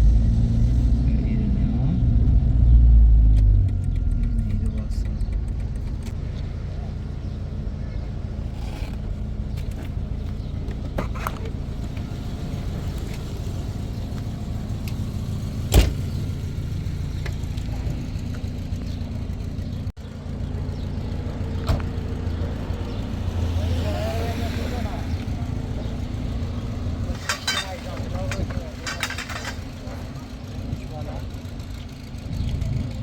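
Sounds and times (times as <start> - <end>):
car engine rumble: 0.0 - 33.0
road noise: 0.0 - 33.0.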